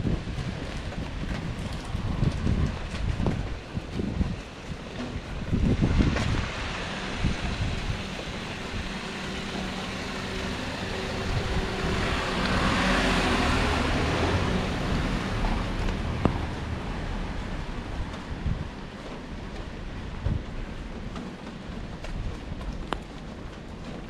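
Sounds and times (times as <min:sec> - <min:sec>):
car engine hum: 0:06.3 - 0:18.1.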